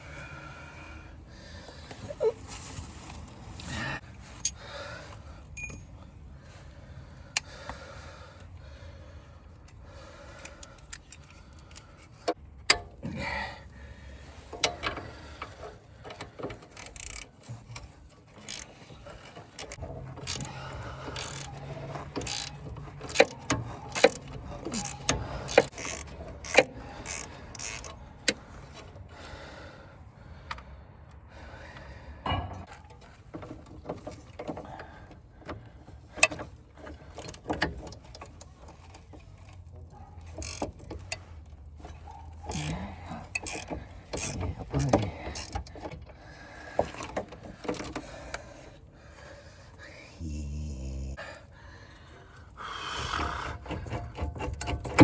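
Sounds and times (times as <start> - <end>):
metal tools clinking on metal: 5.5 - 6.1.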